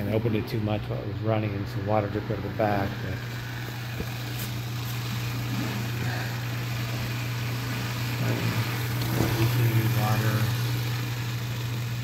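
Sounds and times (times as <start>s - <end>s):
dishwasher pump motor hum: 0.0s - 12.0s
water spraying: 3.3s - 12.0s.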